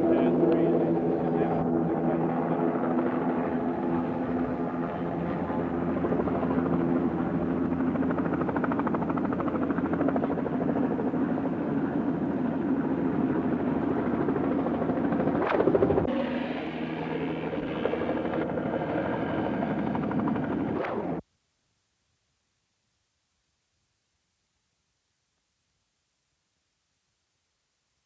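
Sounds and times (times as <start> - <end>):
helicopter rotor drone: 0.0 - 21.2.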